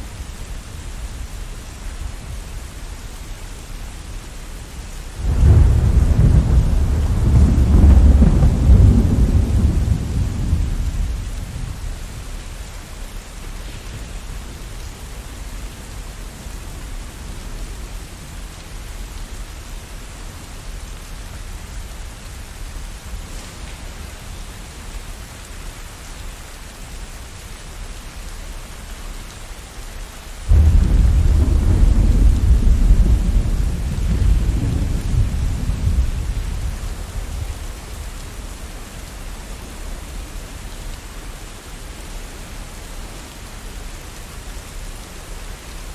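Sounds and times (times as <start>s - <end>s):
rain falling: 0.0s - 45.9s
loud thunderclap: 5.2s - 11.8s, 30.5s - 37.5s
thunder rumbling: 5.2s - 12.4s, 30.5s - 38.4s.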